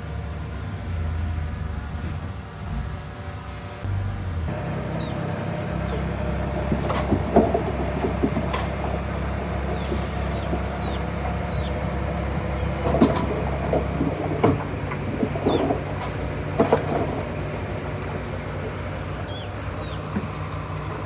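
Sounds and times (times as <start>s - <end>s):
bulldozer diesel engine under load: 0.0s - 21.0s
rocks knocking and clanking: 5.9s - 21.0s.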